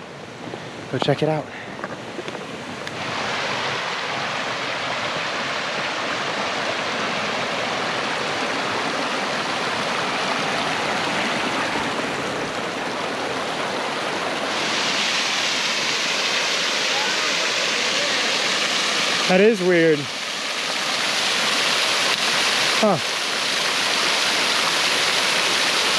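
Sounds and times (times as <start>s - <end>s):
water rushing down stream: 0.0s - 25.9s.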